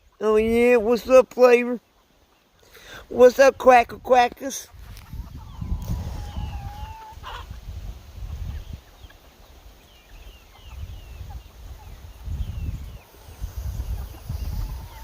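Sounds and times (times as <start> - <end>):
chickens clucking: 0.0 - 15.0
wind rumble on microphone: 4.7 - 8.9, 10.6 - 15.0.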